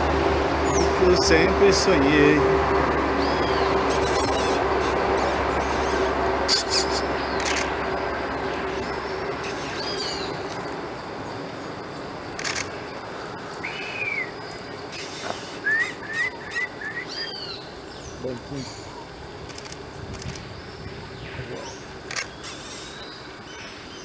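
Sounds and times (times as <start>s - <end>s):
steady background hiss: 0.0s - 24.0s
birds whistling calls: 3.2s - 7.8s, 8.4s - 11.4s, 12.4s - 19.6s, 20.2s - 24.0s
sharp clicks: 6.5s - 7.8s, 12.3s - 12.8s, 19.4s - 20.5s, 22.0s - 23.0s.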